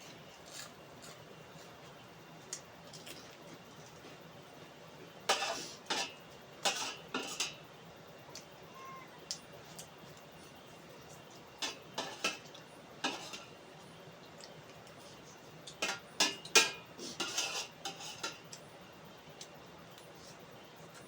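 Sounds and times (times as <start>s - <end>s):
cutlery clinking and scraping dish: 5.3s - 7.6s, 11.6s - 13.5s, 15.7s - 18.5s.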